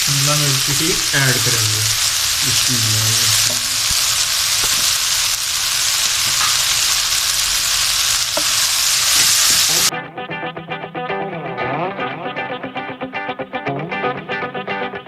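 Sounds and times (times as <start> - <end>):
guitar music: 0.0 - 4.2, 9.7 - 15.0
vegetables sizzling in oil: 0.0 - 9.9.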